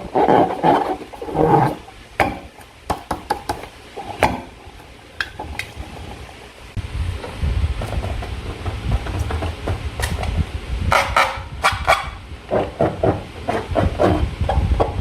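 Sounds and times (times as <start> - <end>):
low rumble: 6.7 - 12.5.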